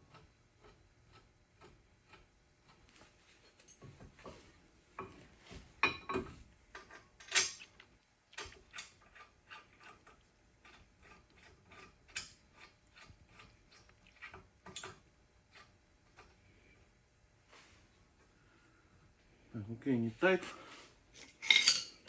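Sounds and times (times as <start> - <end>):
metal clanks: 21.2 - 22.0.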